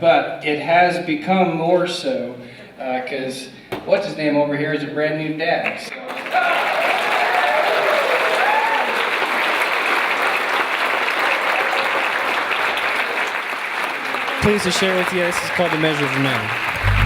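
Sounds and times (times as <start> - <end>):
audience applauding: 5.9 - 17.0
whoops and cheers: 6.2 - 9.3.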